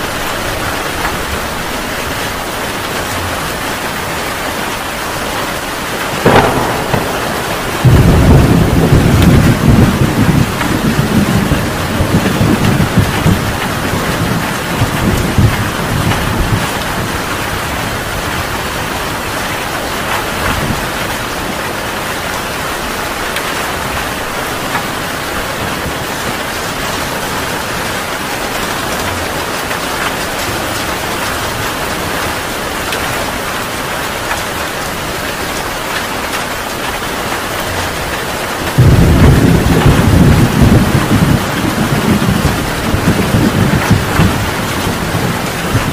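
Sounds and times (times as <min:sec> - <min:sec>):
heavy rain pouring: 0:00.0 - 0:45.9
thunder rumbling: 0:06.0 - 0:18.5, 0:38.6 - 0:45.9
loud thunderclap: 0:06.1 - 0:17.2, 0:38.7 - 0:45.9.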